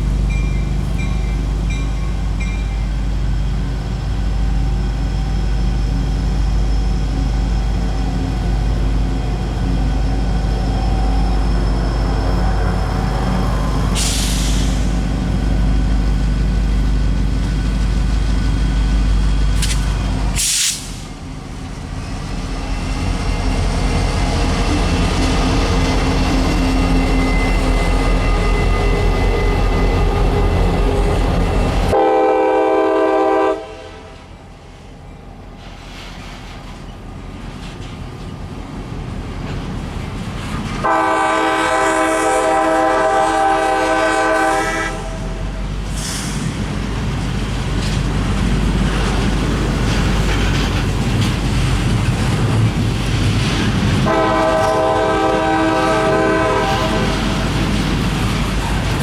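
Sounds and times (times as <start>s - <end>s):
diesel locomotive engine drone: 0.0s - 59.0s
rail noise: 0.0s - 59.0s
air hiss: 13.8s - 15.0s, 19.6s - 21.2s.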